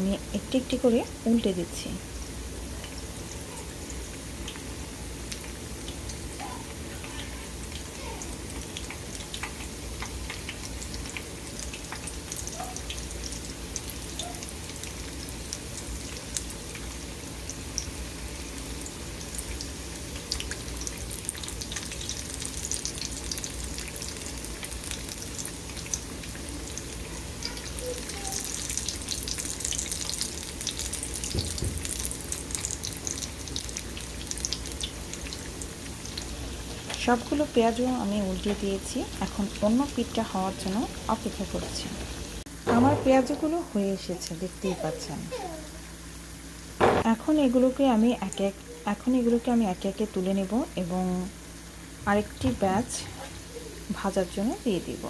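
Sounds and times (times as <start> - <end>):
fritters deep-frying in oil: 0.0 - 42.6.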